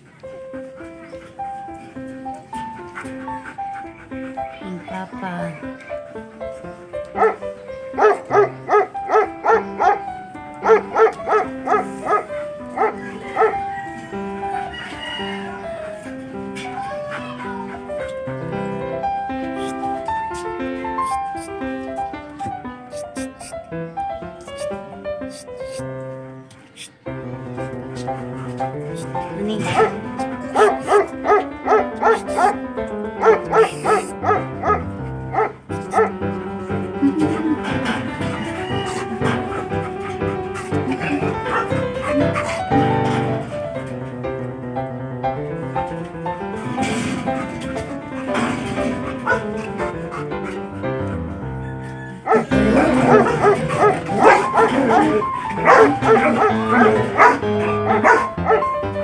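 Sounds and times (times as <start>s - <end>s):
background music: 0.0s - 59.0s
dog barking: 7.2s - 13.6s, 29.6s - 32.6s, 33.2s - 36.2s, 41.5s - 42.5s, 49.2s - 49.5s, 52.2s - 58.7s.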